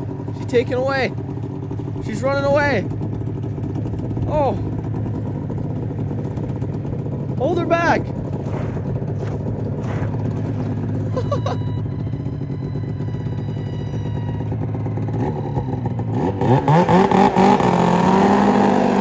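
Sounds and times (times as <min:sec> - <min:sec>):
snowmobile engine revving: 0:07.7 - 0:11.6, 0:16.1 - 0:19.0.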